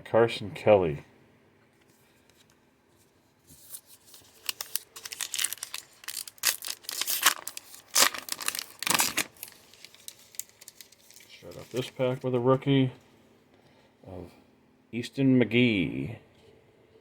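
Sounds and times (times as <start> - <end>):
foil wrapper tearing and crinkling: 3.7 - 12.0.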